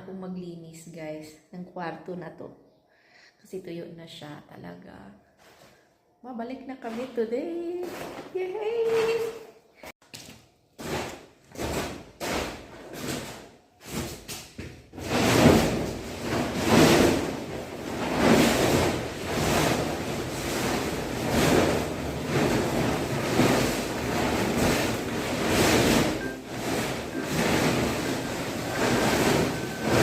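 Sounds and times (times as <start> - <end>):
broom sweeping a floor: 10.8 - 30.0.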